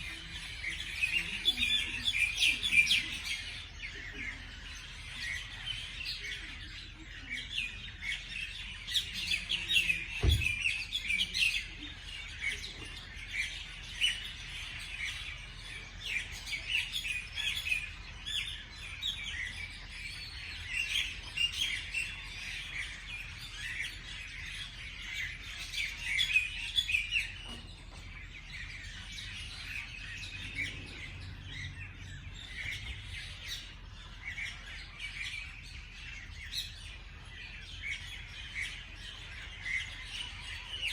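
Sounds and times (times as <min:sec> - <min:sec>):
small birds chirping: 0:00.0 - 0:40.9
short low thump: 0:10.2 - 0:10.6.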